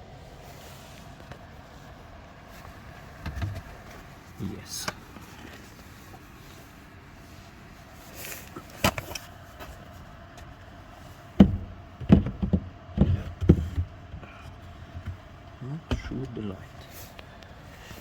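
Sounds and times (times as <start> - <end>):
faint steady hum: 0.0 - 18.0
heavy clunks of car parts: 3.2 - 4.0, 8.6 - 9.7, 11.3 - 16.4.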